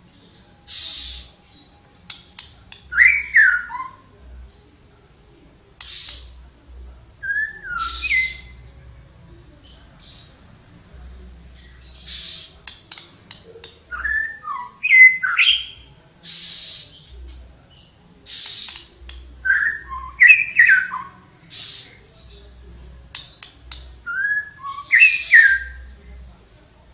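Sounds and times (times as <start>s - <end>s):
songbird whistled phrases: 0.6s - 4.7s, 7.1s - 8.8s, 9.6s - 26.0s
bird scratchy chattering: 0.7s - 1.3s, 5.8s - 6.4s, 11.6s - 17.1s, 18.2s - 22.2s.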